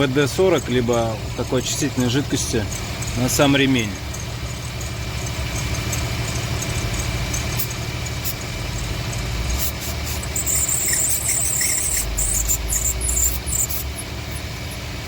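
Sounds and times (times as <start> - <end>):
car engine idling: 0.0 - 15.0
drive belt squeaking: 0.0 - 15.0
aerosol spray hissing: 9.6 - 13.8.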